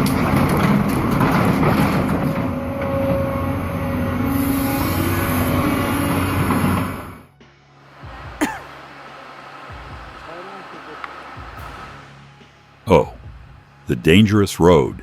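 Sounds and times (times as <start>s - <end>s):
mechanical rattle: 0.0s - 3.2s
excavator diesel engine running: 0.0s - 7.3s.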